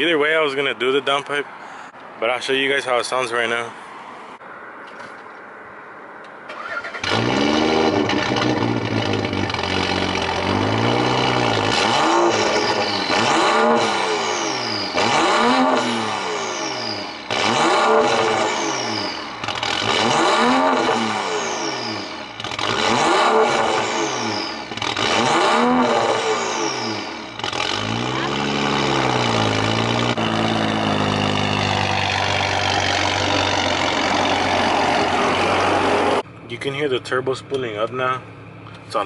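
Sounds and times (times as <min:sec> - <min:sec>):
car engine revving: 0:06.5 - 0:36.4
turbo whistle: 0:12.0 - 0:17.2, 0:25.6 - 0:27.3.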